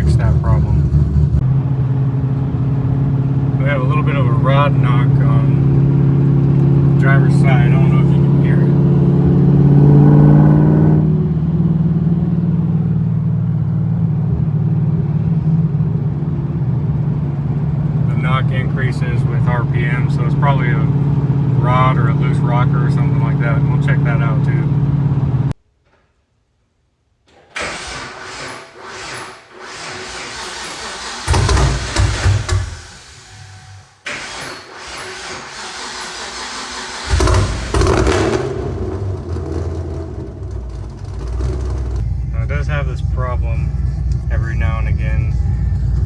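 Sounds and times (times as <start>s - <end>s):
car engine running: 0.0s - 25.5s, 29.5s - 34.0s, 35.2s - 46.0s
starter cranking engine: 27.3s - 42.0s.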